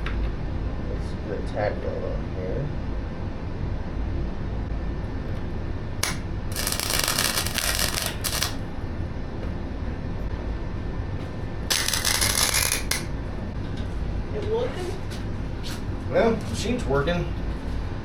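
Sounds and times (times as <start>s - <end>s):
welder arc crackling: 6.0s - 8.7s, 11.7s - 13.2s.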